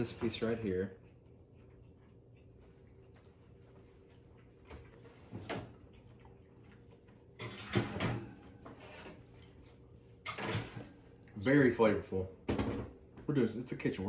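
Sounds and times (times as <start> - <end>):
mouth and chewing noises: 0.0 - 7.4
faint steady hum: 0.0 - 14.0.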